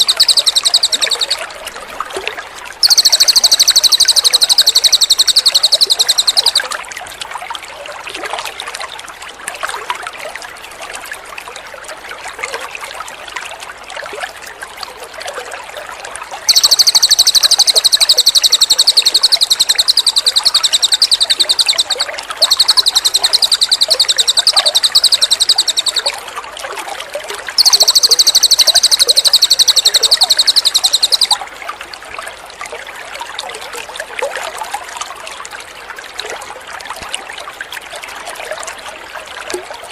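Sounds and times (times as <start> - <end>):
bird song of repeated notes: 0.0 - 1.4, 2.8 - 6.8, 16.5 - 26.2, 27.6 - 31.4
water trickling: 0.0 - 39.9.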